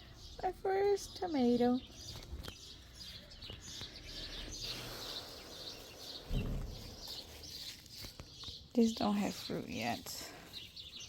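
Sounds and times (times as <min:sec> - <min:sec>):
small birds chirping: 0:00.0 - 0:11.0
low thump: 0:06.3 - 0:07.0.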